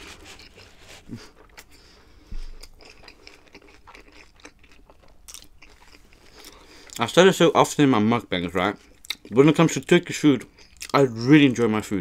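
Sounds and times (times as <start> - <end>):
person chewing food: 0.0 - 7.0, 8.7 - 9.4.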